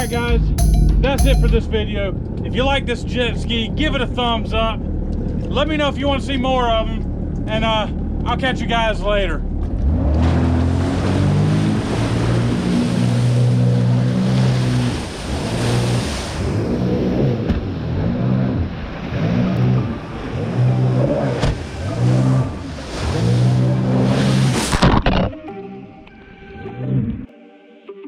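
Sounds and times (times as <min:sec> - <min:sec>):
jet ski engine running hard: 0:10.2 - 0:24.6.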